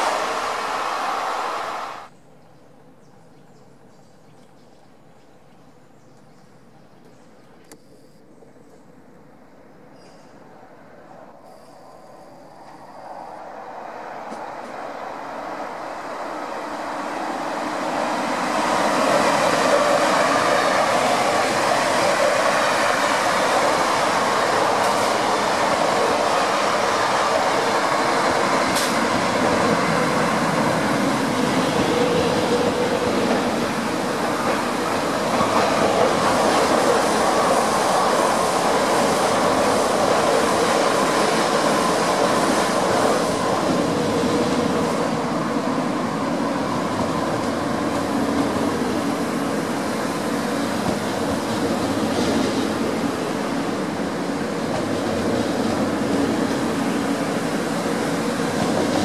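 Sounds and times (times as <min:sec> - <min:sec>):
train wheels rumbling on rails: 0:00.0 - 0:02.2, 0:11.5 - 0:59.0.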